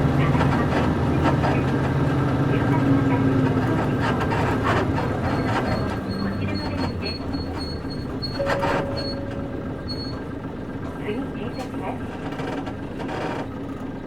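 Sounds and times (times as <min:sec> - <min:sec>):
bus diesel engine: 0:00.0 - 0:14.0
body and suspension creaks and rattles: 0:03.4 - 0:10.3, 0:11.6 - 0:14.0.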